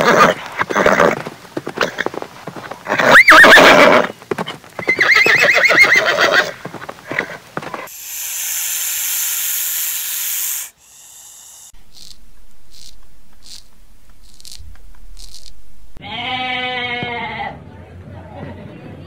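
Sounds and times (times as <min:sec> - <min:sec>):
horse whinnying: 0:00.0 - 0:01.2, 0:02.8 - 0:07.4
rattlesnake hissing: 0:07.9 - 0:14.6.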